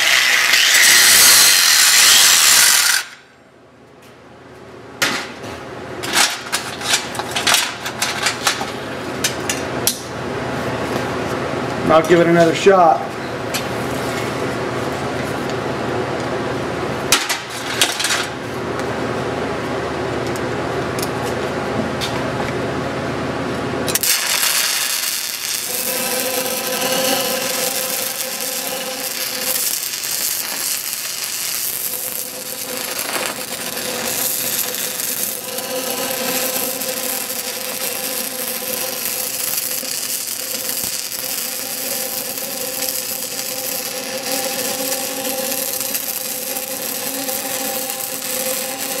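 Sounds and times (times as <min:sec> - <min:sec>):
welding arc crackling sizzle: 0:00.0 - 0:03.3, 0:23.8 - 0:49.0
welding arc strikes: 0:00.0 - 0:03.3, 0:23.9 - 0:49.0
steady hum: 0:03.0 - 0:49.0.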